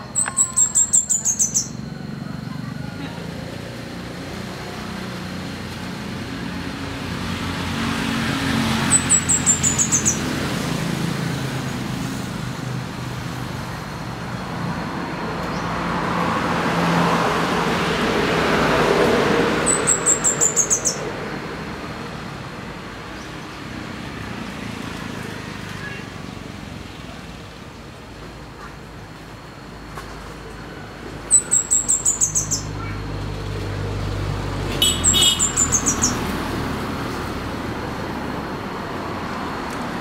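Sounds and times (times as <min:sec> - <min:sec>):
bird singing high notes: 0:00.0 - 0:01.9, 0:08.8 - 0:10.2
road traffic rumble: 0:00.0 - 0:40.0.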